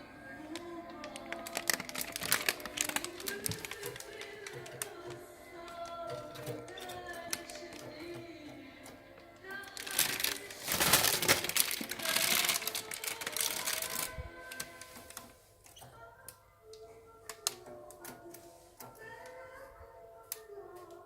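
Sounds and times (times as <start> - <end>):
soft background music: 0.0 - 21.0
rapid clicking and rattling: 1.1 - 15.3.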